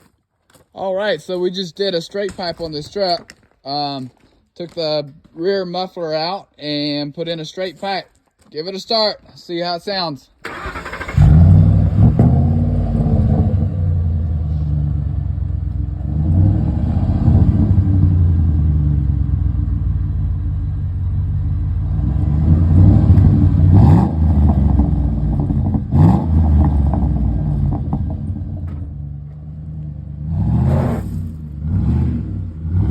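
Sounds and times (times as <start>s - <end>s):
truck engine rumbling and revving: 10.4s - 32.9s.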